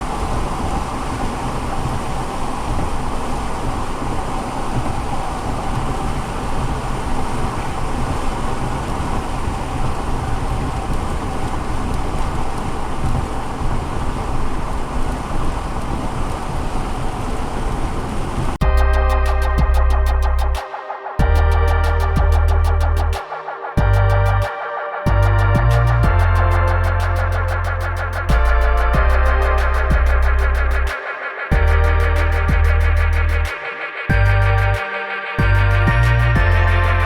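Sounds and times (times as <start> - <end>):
road noise inside vehicle: 0.0 - 18.6
rain: 0.0 - 37.0.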